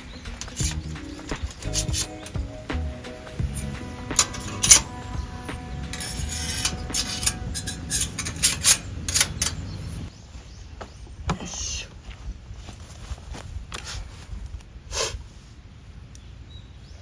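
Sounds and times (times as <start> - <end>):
camping gear knocking and clinking: 0.0 - 9.8
low rumble: 0.6 - 10.1.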